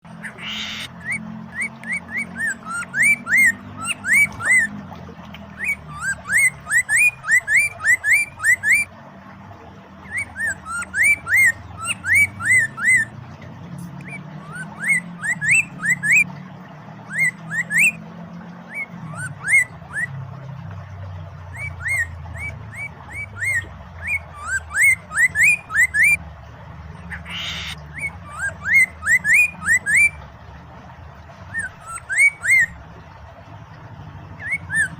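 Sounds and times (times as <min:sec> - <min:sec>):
flowing water rushing: 0:00.0 - 0:34.9
bird singing whistled notes: 0:00.3 - 0:04.7, 0:05.6 - 0:08.9, 0:10.0 - 0:13.1, 0:13.8 - 0:16.3, 0:17.1 - 0:18.0, 0:21.5 - 0:26.2, 0:27.2 - 0:30.2, 0:31.5 - 0:32.8.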